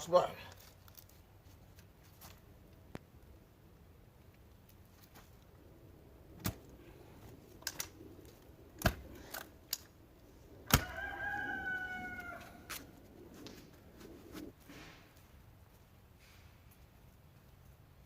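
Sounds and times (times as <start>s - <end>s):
rooster crowing: 10.7s - 13.0s.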